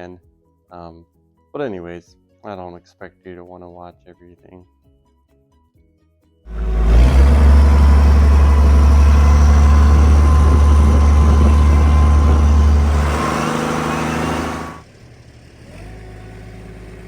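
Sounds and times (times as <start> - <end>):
diesel engine droning: 6.5 - 17.0.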